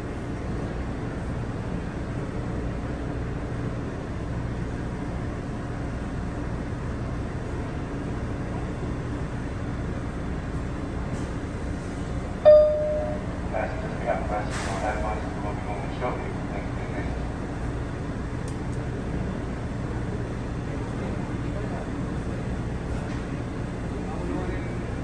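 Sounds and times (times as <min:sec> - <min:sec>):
subway train rumble and hum: 0:00.0 - 0:25.0
short loud tone: 0:12.5 - 0:13.5.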